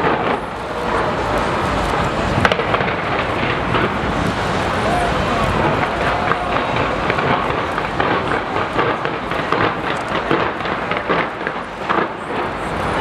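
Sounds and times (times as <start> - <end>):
fireworks cracks and bangs: 0.0 - 13.0.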